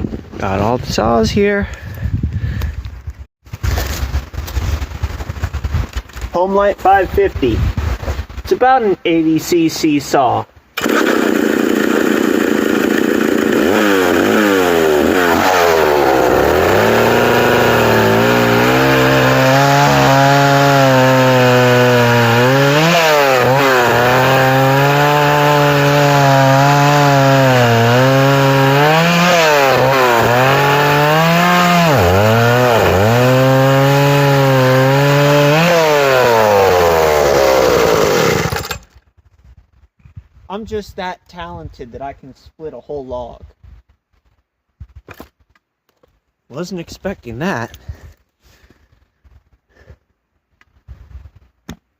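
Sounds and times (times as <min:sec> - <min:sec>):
chainsaw cutting through log: 0:10.8 - 0:38.9.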